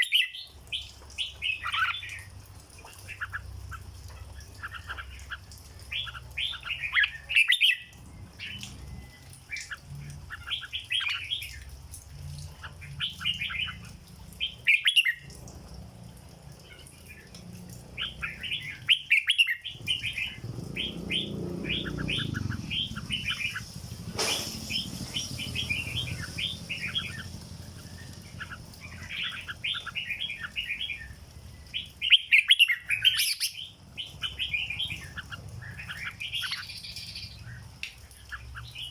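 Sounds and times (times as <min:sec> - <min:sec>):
bird singing chirpy notes: 0:18.0 - 0:37.6.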